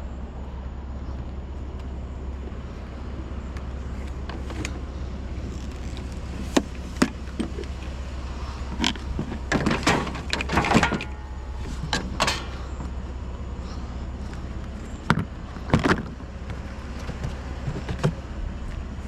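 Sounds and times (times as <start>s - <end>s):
low vehicle rumble: 0.0s - 19.0s
sharp knocks and clatters: 9.3s - 11.3s, 11.9s - 12.9s.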